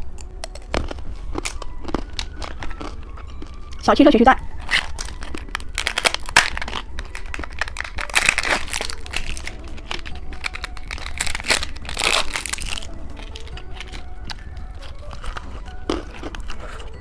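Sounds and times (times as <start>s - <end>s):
plastic wrappers crinkling: 0.0s - 17.0s.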